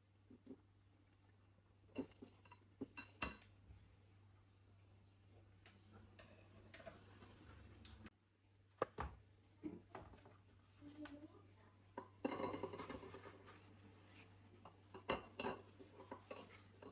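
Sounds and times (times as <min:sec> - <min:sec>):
kitchenware clinking: 0:01.9 - 0:03.6, 0:12.0 - 0:13.3, 0:14.6 - 0:16.9.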